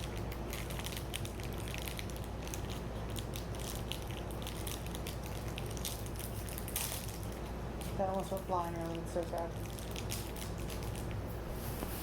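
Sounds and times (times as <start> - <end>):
crunching snack bar being bitten: 0.0 - 8.0
fan and appliance hum: 0.0 - 12.0.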